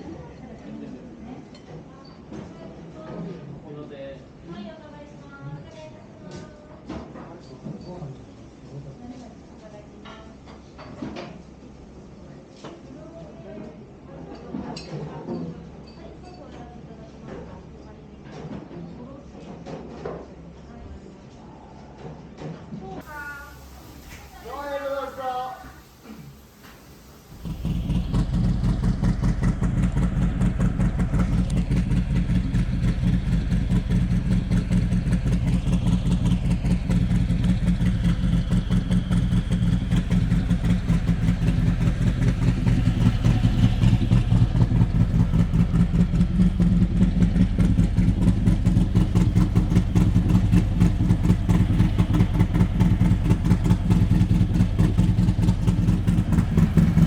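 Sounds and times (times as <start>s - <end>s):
motorcycle engine rumbling: 27.2s - 57.0s.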